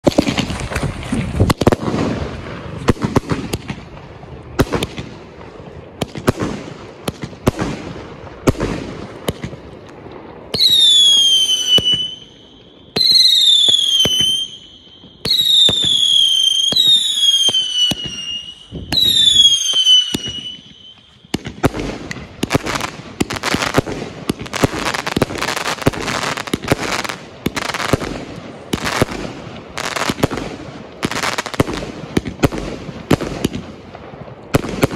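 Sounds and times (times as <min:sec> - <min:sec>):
firework bangs: 0:00.0 - 0:34.9
firework popping and crackling: 0:00.0 - 0:34.9
falling firework whistles: 0:10.5 - 0:23.8.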